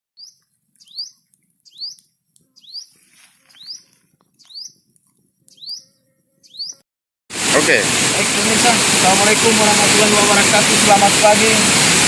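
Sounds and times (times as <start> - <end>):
bird calling rising notes: 0.2 - 6.8.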